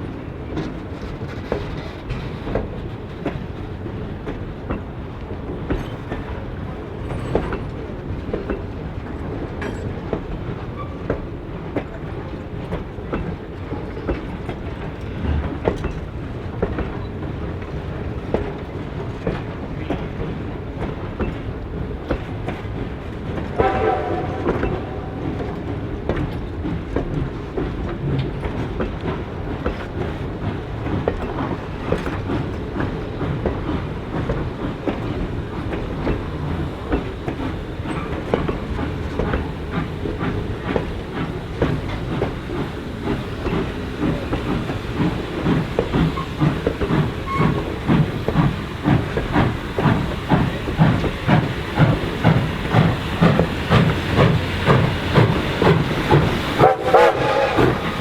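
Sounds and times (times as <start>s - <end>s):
steam locomotive rumbling: 0.0s - 58.0s
wheels clicking over rail joints: 0.5s - 58.0s
steam whistle blast: 23.6s - 25.4s, 56.6s - 58.0s.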